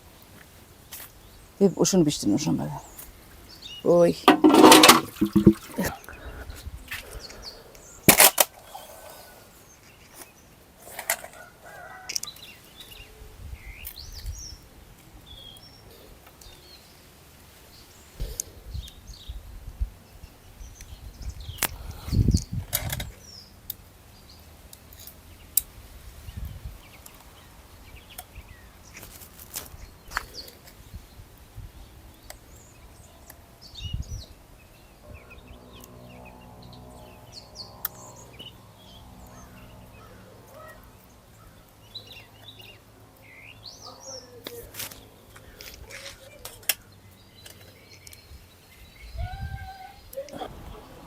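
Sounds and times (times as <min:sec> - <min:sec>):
birds chirping: 0:01.2 - 0:10.6, 0:31.9 - 0:51.0
knocks and thumps from handling: 0:04.3 - 0:06.0.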